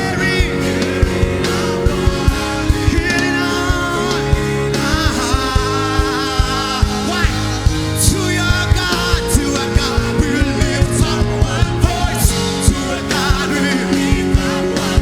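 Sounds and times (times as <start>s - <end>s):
person singing: 0.0s - 15.0s
worship band music: 0.0s - 15.0s.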